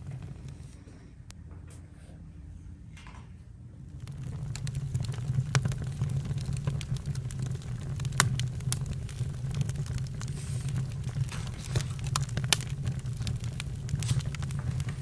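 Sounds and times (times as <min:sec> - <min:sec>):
campfire crackling and popping: 0:00.0 - 0:00.8, 0:03.8 - 0:15.0
low fire rumble: 0:00.0 - 0:01.3, 0:03.7 - 0:15.0.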